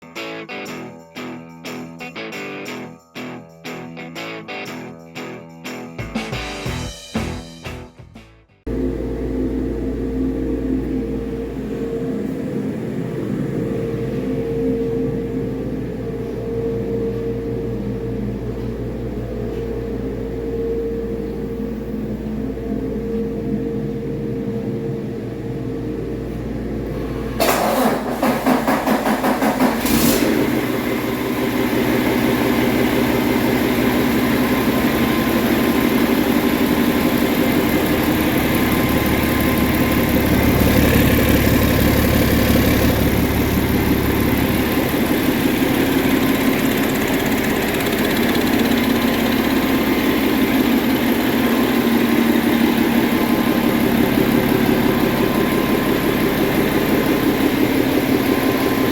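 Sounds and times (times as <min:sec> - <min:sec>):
diesel engine idling: 0:08.7 - 0:58.9
starter motor cranking: 0:27.4 - 0:30.5.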